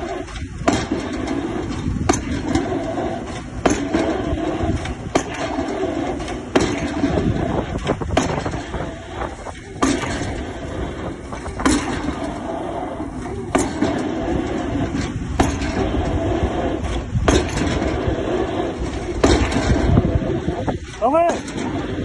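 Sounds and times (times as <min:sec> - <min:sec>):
engine noise: 0:00.0 - 0:22.0.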